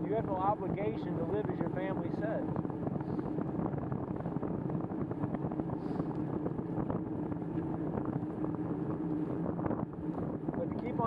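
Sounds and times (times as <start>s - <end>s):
wind on microphone: 0.0s - 11.0s
low hum: 1.4s - 11.0s.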